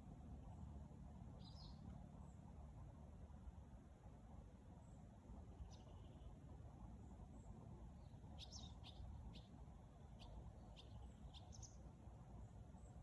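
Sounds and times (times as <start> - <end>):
low steady background rumble: 0.0 - 13.0
faint bird chirps: 8.0 - 11.8.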